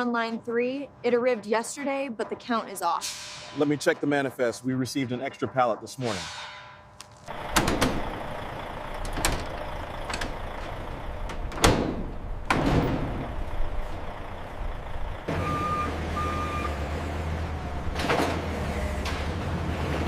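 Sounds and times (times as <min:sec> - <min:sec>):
vehicle engine humming: 0:06.9 - 0:20.0
knocks and clanks: 0:07.3 - 0:14.2
reversing alarm beeps: 0:15.3 - 0:16.8.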